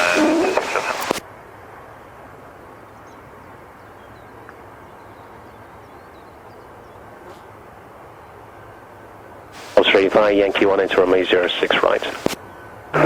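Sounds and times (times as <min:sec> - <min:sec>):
radio channel hiss: 0:00.0 - 0:01.2, 0:09.5 - 0:13.0.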